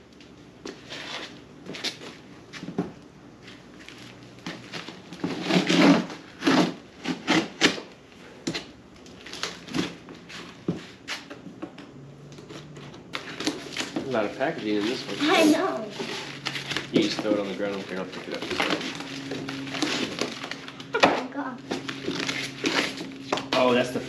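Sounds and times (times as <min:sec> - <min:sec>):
cardboard box being cut and torn: 0:05.3 - 0:07.8
packing material rustling: 0:13.2 - 0:21.0, 0:21.7 - 0:23.9.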